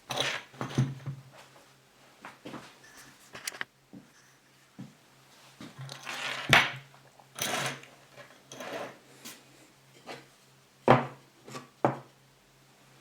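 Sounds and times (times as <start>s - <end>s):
wooden pieces scraping: 5.8s - 6.8s, 7.4s - 9.0s.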